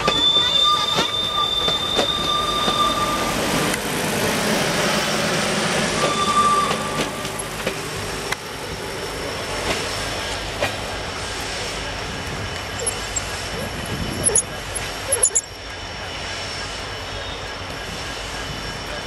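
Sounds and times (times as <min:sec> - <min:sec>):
train wheels squealing: 0:00.0 - 0:03.8, 0:05.7 - 0:07.8, 0:11.7 - 0:19.0
train coaches rumbling past: 0:00.0 - 0:19.0.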